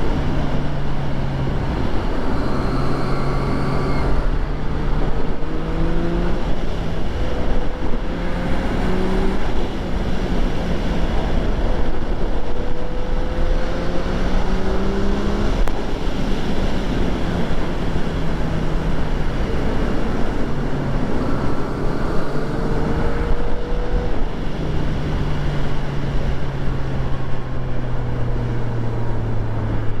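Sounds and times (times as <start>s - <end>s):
motorcycle engine shifting gears: 0.0s - 30.0s
wind rush: 0.0s - 30.0s.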